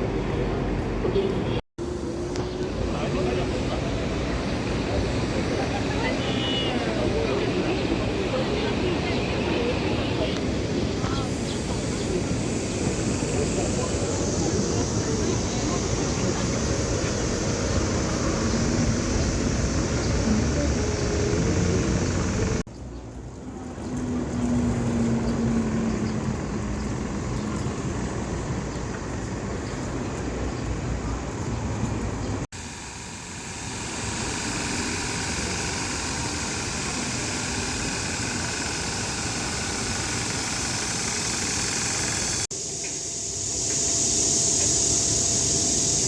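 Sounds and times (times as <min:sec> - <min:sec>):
passing road traffic: 0:00.0 - 0:42.5
car engine hum: 0:11.2 - 0:22.7.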